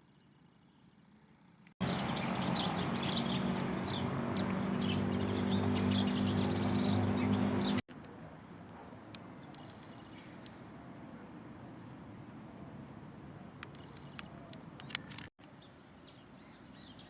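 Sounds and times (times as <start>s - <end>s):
small birds chirping: 1.8s - 7.8s, 13.6s - 17.0s.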